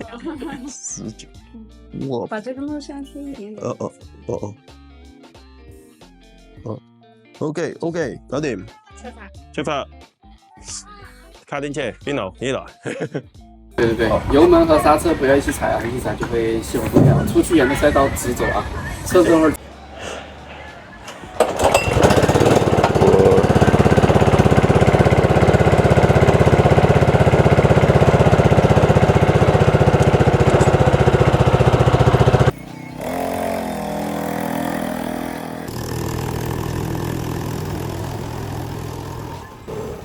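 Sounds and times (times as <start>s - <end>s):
go-kart engine running: 13.8s - 40.0s.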